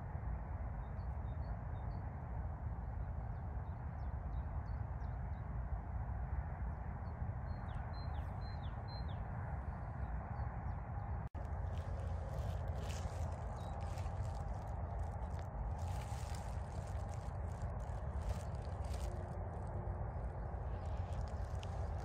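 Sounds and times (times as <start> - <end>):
low rushing background noise: 5.6 - 22.0
small songbirds chirping: 7.0 - 22.0.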